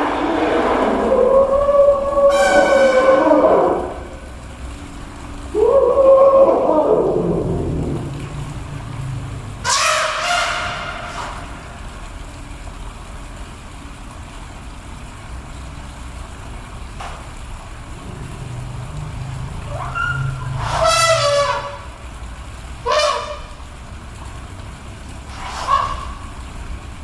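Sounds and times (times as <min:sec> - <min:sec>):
elephant low rumble: 0:00.0 - 0:12.0, 0:16.8 - 0:27.0
elephants trumpeting: 0:00.0 - 0:12.0, 0:17.7 - 0:23.8, 0:25.2 - 0:26.8.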